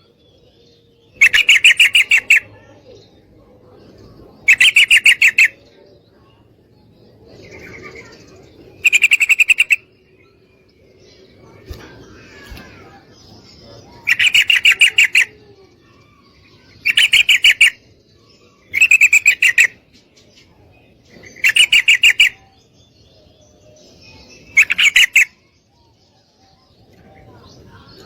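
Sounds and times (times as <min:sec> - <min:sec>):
bird chattering call: 0:01.2 - 0:02.7, 0:04.4 - 0:05.6, 0:08.8 - 0:09.9, 0:13.8 - 0:15.5, 0:16.8 - 0:17.8, 0:18.7 - 0:19.8, 0:21.4 - 0:22.5.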